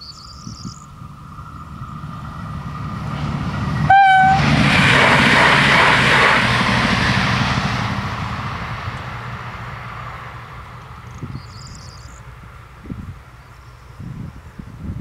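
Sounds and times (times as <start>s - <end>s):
diesel train passing: 0.2s - 14.8s
train horn blast: 3.8s - 6.6s.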